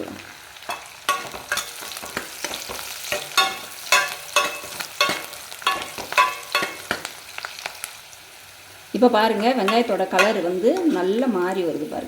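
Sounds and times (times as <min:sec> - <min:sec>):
onions sizzling in hot oil: 0:00.0 - 0:12.0
spoon scraping a pan: 0:00.7 - 0:07.2, 0:09.2 - 0:11.2.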